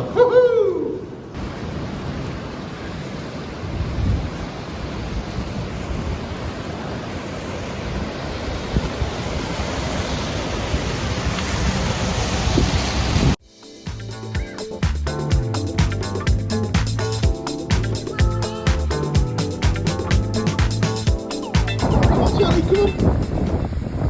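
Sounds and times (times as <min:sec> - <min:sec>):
wind buffeting microphone: 0:01.0 - 0:13.4, 0:21.8 - 0:24.0
surf washing onto beach: 0:01.2 - 0:13.4.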